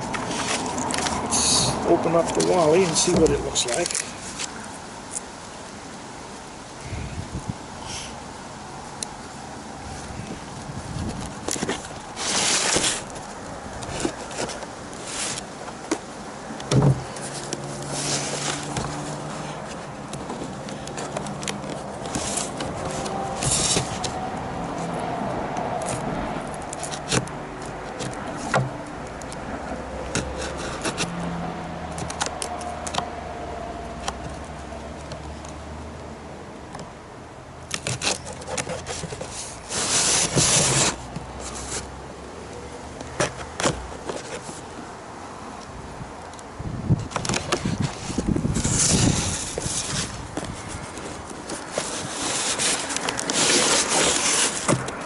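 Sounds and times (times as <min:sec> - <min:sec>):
cardboard scraping and knocks: 0:00.0 - 0:04.0, 0:11.0 - 0:24.2, 0:25.8 - 0:28.8, 0:30.1 - 0:31.2, 0:37.8 - 0:41.9, 0:47.0 - 0:55.0
packaging rustling: 0:47.3 - 0:55.0.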